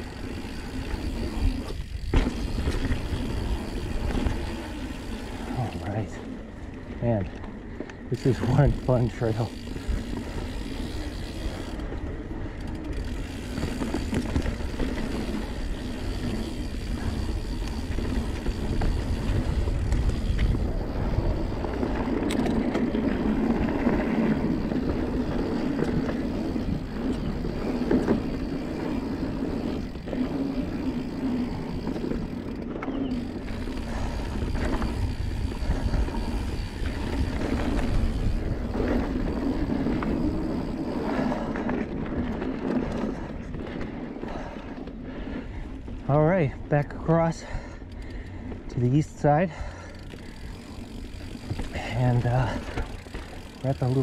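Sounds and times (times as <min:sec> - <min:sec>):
bike clattering over bumps: 0:00.0 - 0:05.5, 0:08.2 - 0:44.7, 0:49.6 - 0:54.0
bike tyres on dirt trail: 0:00.0 - 0:54.0
wind rumble on microphone: 0:16.6 - 0:32.4, 0:33.6 - 0:44.0.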